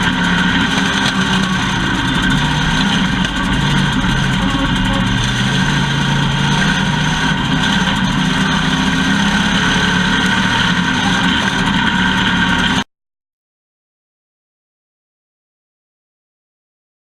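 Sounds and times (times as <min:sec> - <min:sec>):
race car engine running: 0:00.0 - 0:12.9.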